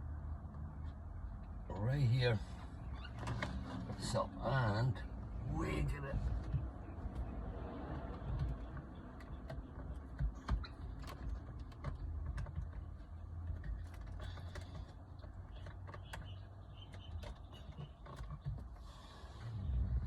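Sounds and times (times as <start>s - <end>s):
low steady rumble: 18.7s - 20.0s.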